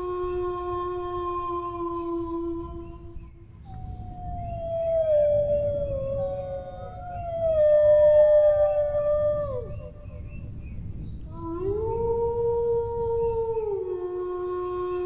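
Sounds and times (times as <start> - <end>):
dogs howling: 3.6 - 10.4.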